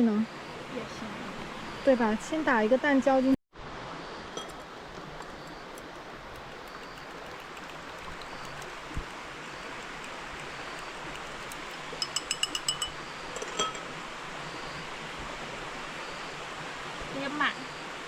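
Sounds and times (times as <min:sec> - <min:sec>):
flowing stream water: 0:00.4 - 0:02.4, 0:03.7 - 0:17.2
egg beaten in a bowl: 0:05.2 - 0:13.0.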